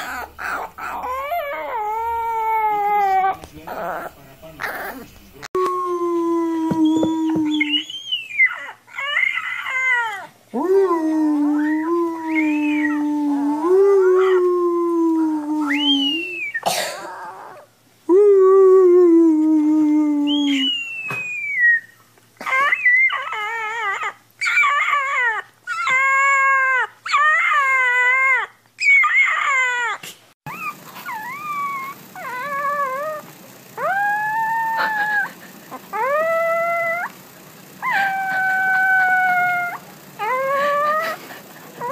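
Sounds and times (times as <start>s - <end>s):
puppies howling: 0.0s - 5.6s, 6.6s - 10.4s, 11.4s - 14.5s, 20.6s - 41.9s
person howling: 5.6s - 7.9s, 9.0s - 16.4s, 33.8s - 37.1s, 37.8s - 41.2s.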